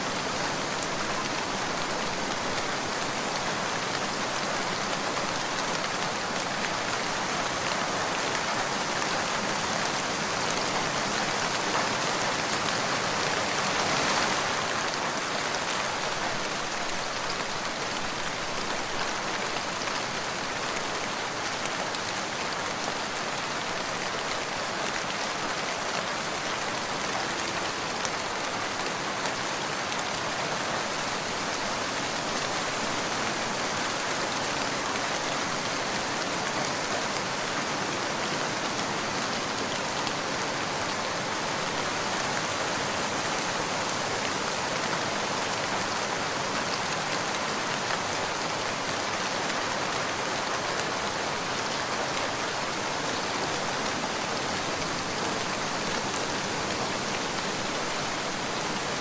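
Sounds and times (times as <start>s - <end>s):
rain pattering on a surface: 0.1s - 59.0s.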